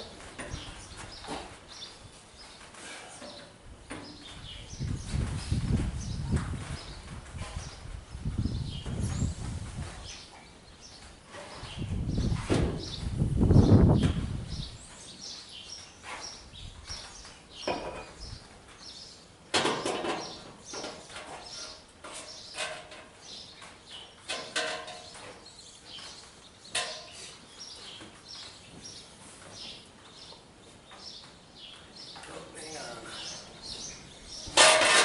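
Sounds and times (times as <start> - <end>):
small birds chirping: 0.0 - 34.6
sharp knocks and clanks: 17.6 - 18.2, 19.5 - 25.4, 26.7 - 27.3, 34.5 - 35.0.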